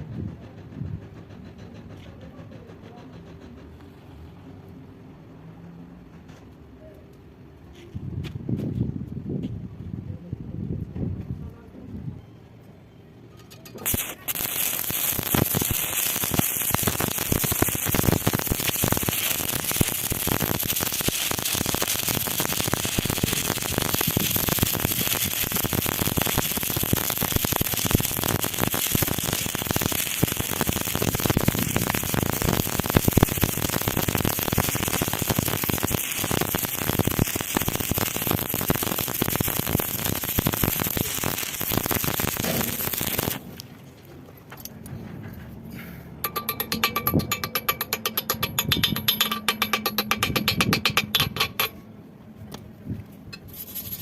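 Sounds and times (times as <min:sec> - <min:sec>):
electric arc welding crackling: 0:13.7 - 0:43.6.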